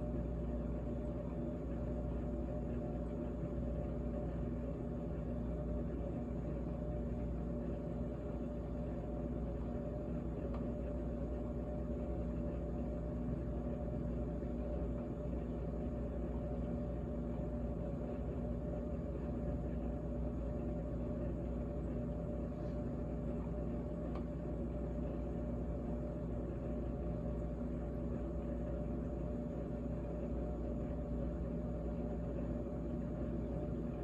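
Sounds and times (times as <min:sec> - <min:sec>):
refrigerator humming: 0:00.0 - 0:34.0
faint tick: 0:10.4 - 0:10.7.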